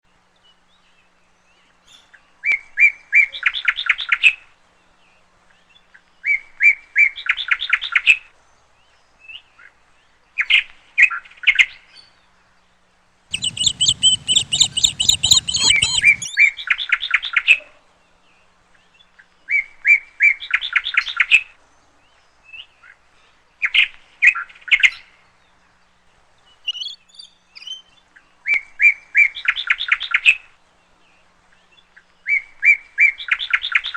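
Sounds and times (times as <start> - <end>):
songbird singing: 13.3 - 16.9, 26.4 - 28.0.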